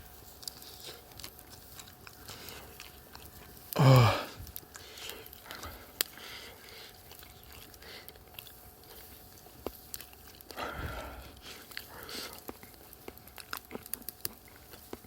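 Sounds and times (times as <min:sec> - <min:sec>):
faint chewing: 0:00.0 - 0:15.0
small eating clicks: 0:00.0 - 0:15.0.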